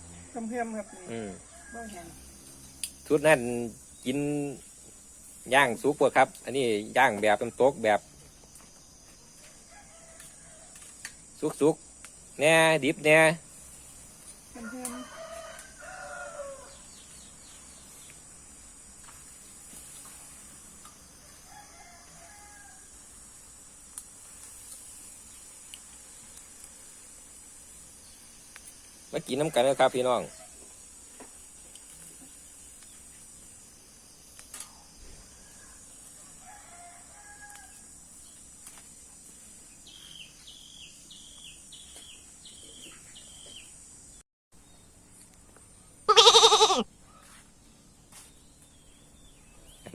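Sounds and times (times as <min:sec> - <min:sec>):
steady high hiss: 0:00.0 - 0:49.9
rooster crowing: 0:00.6 - 0:02.3, 0:09.6 - 0:10.9, 0:14.6 - 0:17.0, 0:21.2 - 0:23.1, 0:35.3 - 0:37.9.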